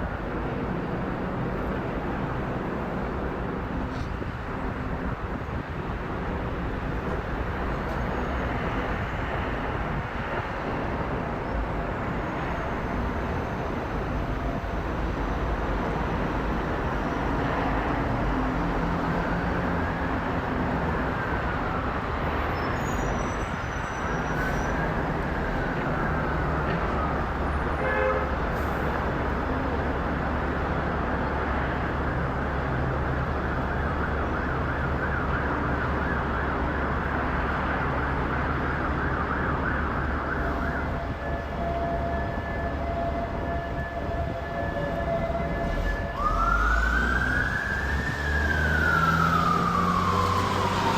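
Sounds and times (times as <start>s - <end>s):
siren rising and falling: 33.7s - 50.9s.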